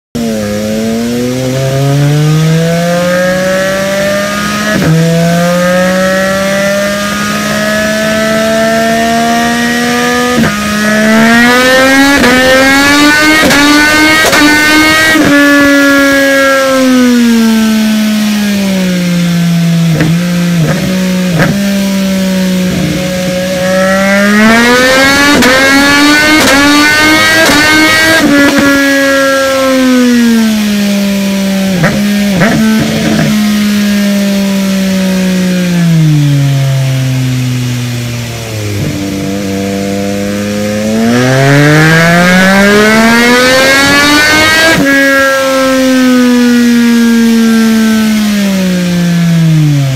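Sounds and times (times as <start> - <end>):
motorcycle engine revving: 0.1 - 49.9
exhaust cracks: 19.7 - 21.8, 31.6 - 33.9.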